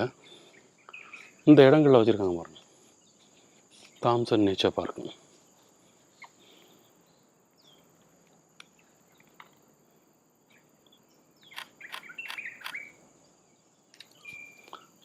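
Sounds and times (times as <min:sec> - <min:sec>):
bird chirps and trills: 0:00.0 - 0:01.5, 0:10.5 - 0:13.0, 0:13.6 - 0:14.9
insect drone: 0:00.0 - 0:15.0.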